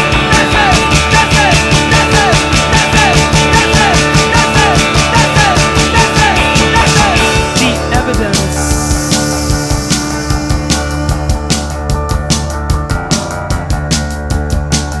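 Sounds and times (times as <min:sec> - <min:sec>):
rock band playing: 0:00.0 - 0:15.0
fast cymbal strokes: 0:05.6 - 0:12.8.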